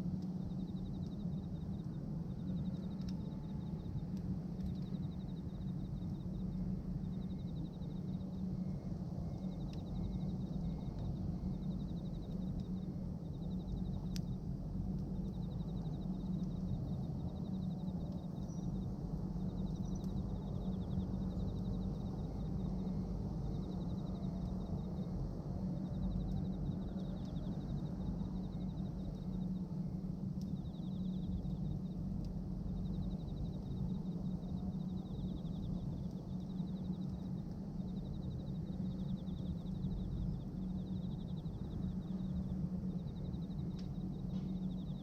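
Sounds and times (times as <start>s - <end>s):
fire popping: 0.1s - 8.1s, 8.8s - 17.4s, 18.0s - 28.2s, 28.8s - 44.9s
insect chirping trills: 30.5s - 45.0s.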